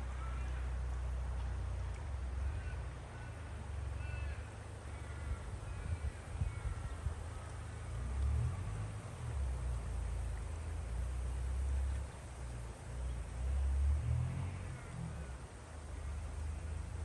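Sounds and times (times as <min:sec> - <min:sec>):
flooded river rushing: 0:00.0 - 0:17.0
birds calling: 0:02.4 - 0:08.0
wind buffeting microphone: 0:05.2 - 0:07.7.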